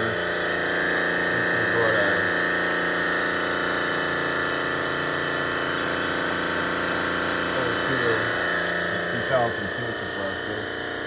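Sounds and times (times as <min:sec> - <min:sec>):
refrigeration machinery humming: 0:00.0 - 0:11.0.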